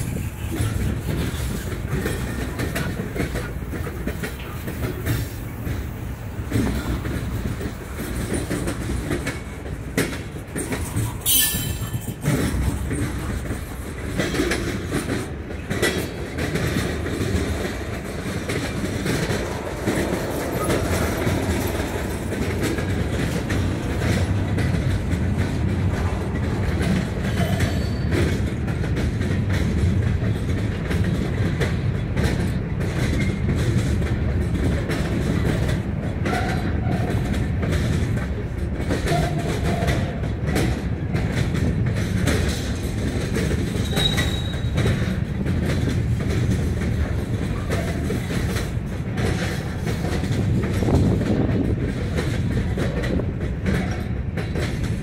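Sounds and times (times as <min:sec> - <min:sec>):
steel wheels rumbling on rail: 0:00.0 - 0:55.0
wheels clicking over rail joints: 0:00.0 - 0:55.0
high-pitched wheel squeal: 0:11.2 - 0:12.2, 0:43.8 - 0:44.7.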